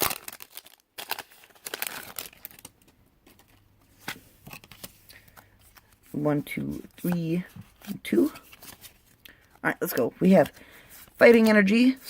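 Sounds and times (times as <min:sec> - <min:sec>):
foil wrapper crinkling and tearing: 0:00.0 - 0:03.6.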